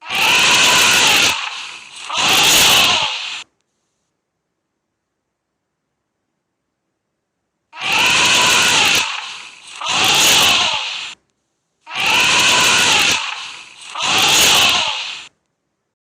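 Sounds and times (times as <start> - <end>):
elephant trumpeting: 0.0 - 3.4, 7.8 - 11.2, 11.9 - 15.3.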